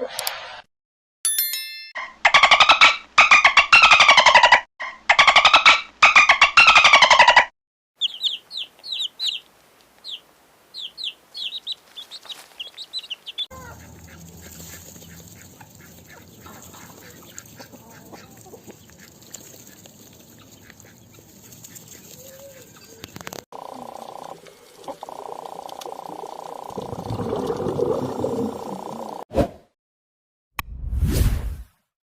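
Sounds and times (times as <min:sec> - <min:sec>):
farmyard noise: 0:02.3 - 0:25.9
high chirping calls: 0:08.0 - 0:15.4
chicken clucking: 0:10.8 - 0:25.2.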